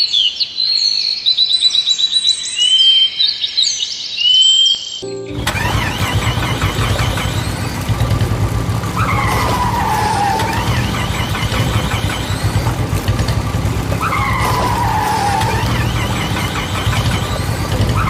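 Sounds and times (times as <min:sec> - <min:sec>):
tractor engine running: 0:05.1 - 0:18.0
falling squeal: 0:05.4 - 0:12.9, 0:13.8 - 0:18.0.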